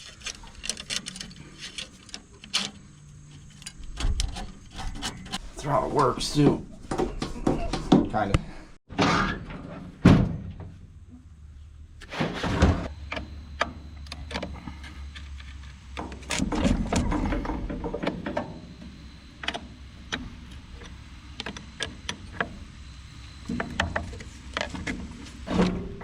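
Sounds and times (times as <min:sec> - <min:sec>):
metal parts clicking and knocking: 0:00.0 - 0:05.4.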